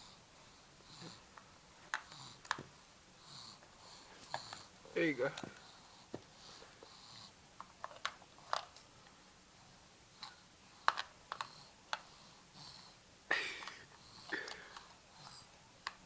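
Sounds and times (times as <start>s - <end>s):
plastic clicks and taps: 10.8s - 12.0s.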